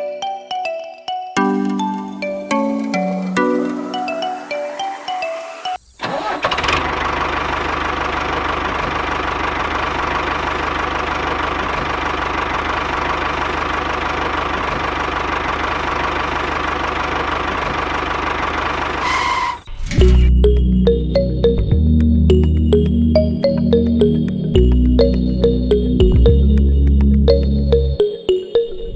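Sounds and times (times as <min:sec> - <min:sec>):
background music: 0:00.0 - 0:05.8, 0:20.0 - 0:28.9
small motor rattling: 0:06.0 - 0:19.6.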